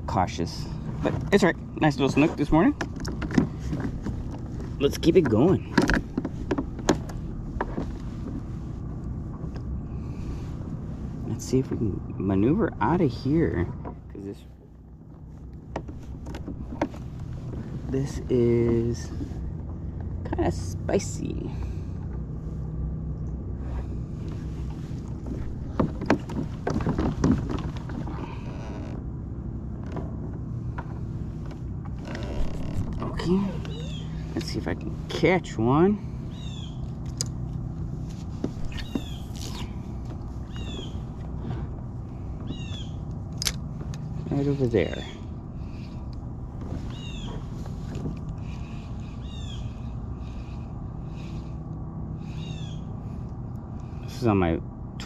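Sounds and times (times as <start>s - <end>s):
steady low hum: 0.0s - 55.0s
steady low rumble: 0.0s - 55.0s
sharp knocks and splashes: 25.2s - 28.2s
bird high arched call: 33.6s - 34.2s, 36.3s - 36.8s, 40.5s - 41.0s, 49.0s - 49.9s, 52.3s - 52.9s.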